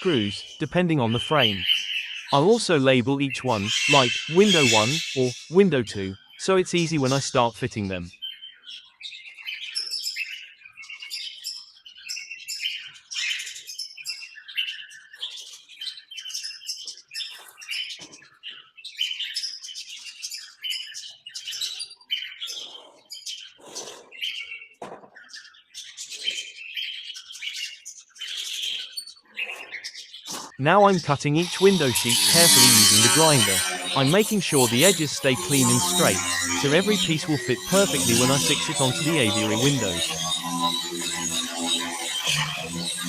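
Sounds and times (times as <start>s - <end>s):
parrots chirping and chattering: 3.4s - 5.6s, 19.2s - 43.0s.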